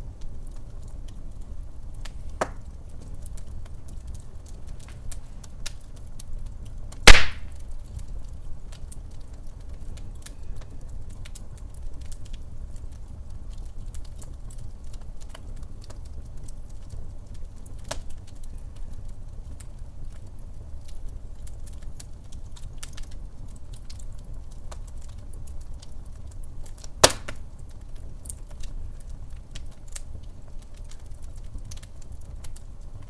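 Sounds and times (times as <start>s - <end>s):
wood fire crackling: 0.0s - 33.0s
loud pop of fire: 2.3s - 3.2s, 6.9s - 7.8s, 27.0s - 27.4s.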